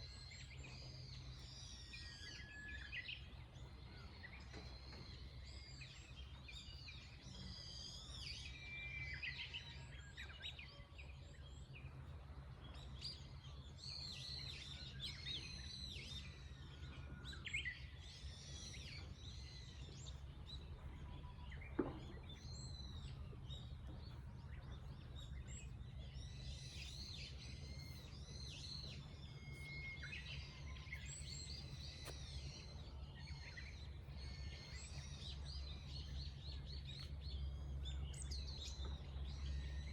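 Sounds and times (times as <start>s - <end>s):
low background rumble: 9.8s - 39.9s
small birds chirping: 11.4s - 39.9s.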